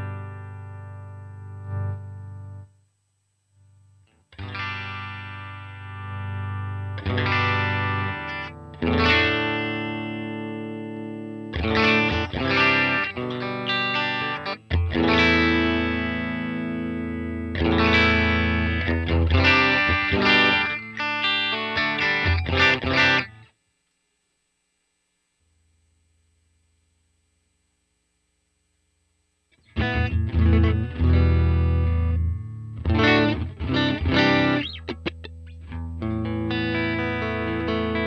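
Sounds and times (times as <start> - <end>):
electric guitar chords and notes: 0.0 - 2.7, 4.1 - 23.5, 29.6 - 38.0.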